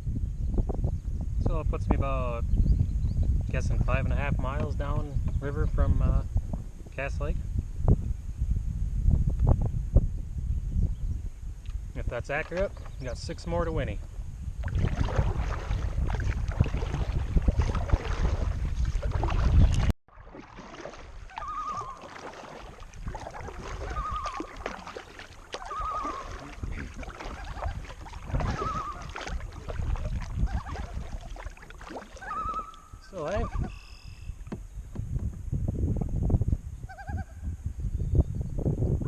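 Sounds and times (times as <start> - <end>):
wind buffeting microphone: 0.0 - 19.9, 20.6 - 39.0
kayak paddling: 11.7 - 35.5
soft paddle splashes: 14.0 - 34.7
loon tremolo call: 21.4 - 22.1, 23.8 - 24.5, 25.6 - 26.4, 32.2 - 34.4.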